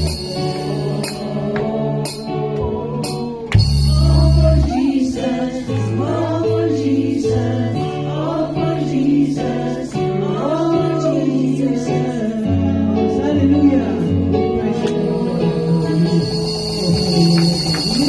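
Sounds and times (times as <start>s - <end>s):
instrumental accompaniment: 0.0s - 5.4s
church choir singing: 0.0s - 18.0s.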